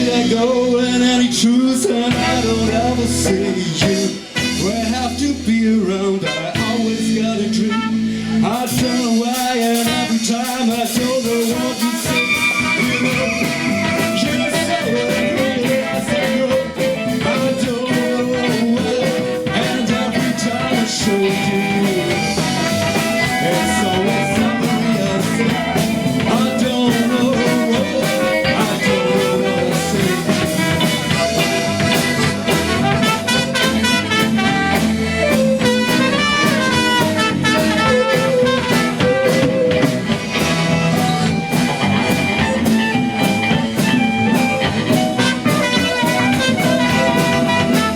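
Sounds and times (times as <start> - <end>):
live band playing instrumental: 0.0 - 47.9
wavering melodic lead line: 11.4 - 47.9.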